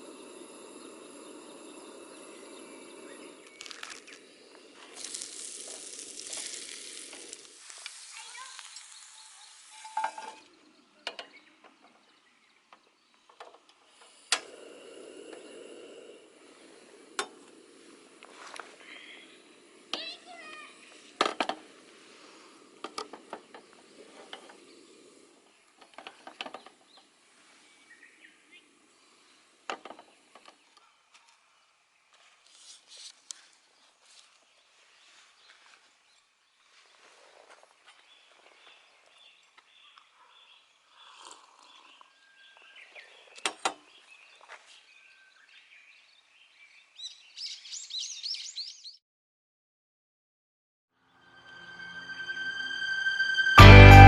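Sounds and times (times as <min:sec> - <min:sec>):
steady low hiss: 0:00.0 - 0:10.9, 0:13.8 - 0:30.4
frying sizzle: 0:03.6 - 0:10.4.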